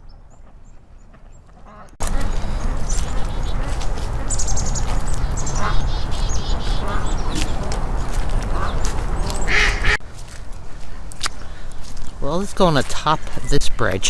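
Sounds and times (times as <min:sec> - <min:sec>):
ducks quacking: 0:01.2 - 0:10.0
steady low rumble: 0:02.0 - 0:12.2.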